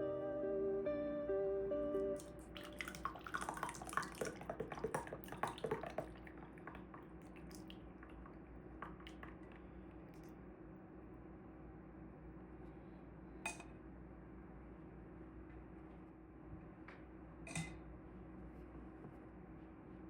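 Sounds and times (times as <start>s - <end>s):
faint steady hum: 0.0s - 20.0s
wet drips and clicks in a mug: 2.2s - 10.4s.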